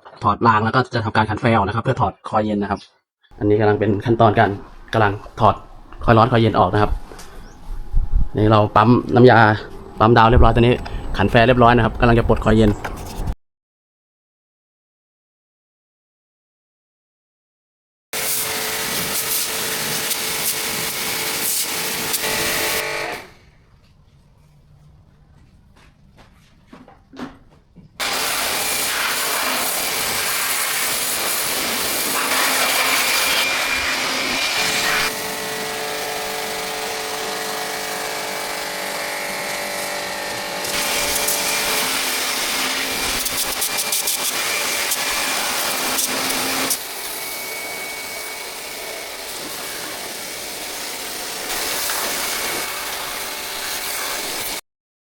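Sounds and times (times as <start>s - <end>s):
pressure washer spraying: 18.2s - 23.3s, 28.0s - 54.6s.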